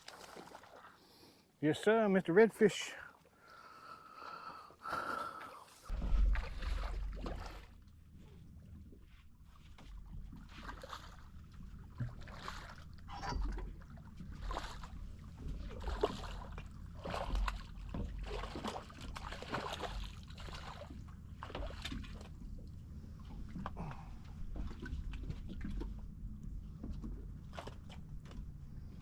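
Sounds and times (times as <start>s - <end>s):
water splashing against boat: 0.0s - 1.4s, 4.9s - 29.0s
low steady rumble: 5.8s - 29.0s.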